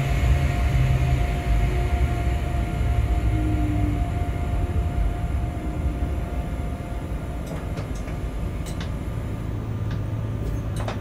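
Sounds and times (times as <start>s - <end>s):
freight train rumbling: 0.0s - 11.0s.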